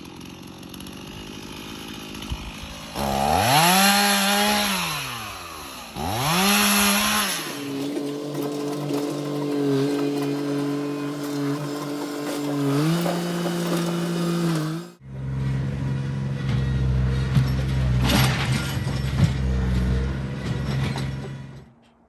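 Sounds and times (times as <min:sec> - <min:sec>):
engine running: 0:00.0 - 0:21.6
heavy engine with knocks: 0:07.7 - 0:21.9.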